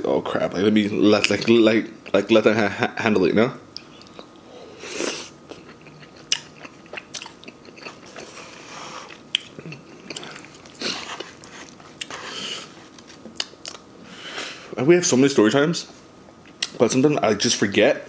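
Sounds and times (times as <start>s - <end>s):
chewing with wet clicks: 3.7s - 4.4s, 5.5s - 8.3s, 9.1s - 12.2s, 13.0s - 13.8s.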